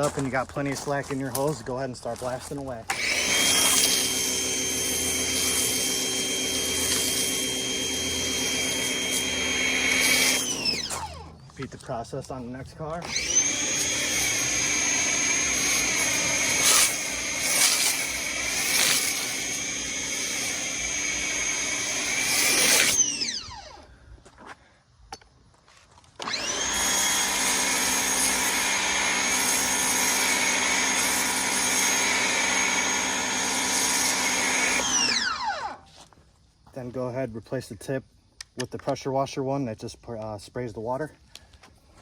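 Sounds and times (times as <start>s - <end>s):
pressure washer motor whining: 2.9s - 11.5s, 12.9s - 23.9s, 26.2s - 35.8s.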